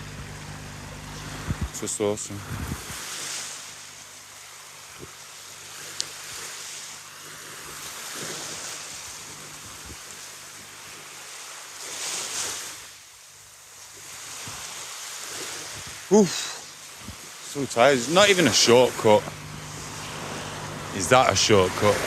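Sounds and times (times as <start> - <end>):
ocean waves washing onto beach: 0.0 - 22.0
wind on microphone: 1.0 - 3.3, 7.7 - 10.2, 14.1 - 16.1, 16.9 - 17.4.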